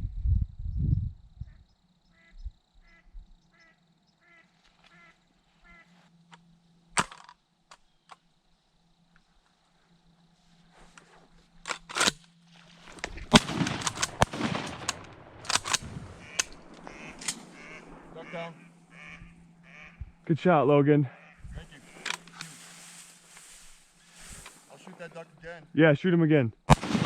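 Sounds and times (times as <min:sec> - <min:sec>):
soft duck quacks: 0:01.4 - 0:06.1, 0:16.2 - 0:20.2, 0:21.1 - 0:22.3
shotgun shots: 0:12.8 - 0:20.0, 0:26.7 - 0:27.0.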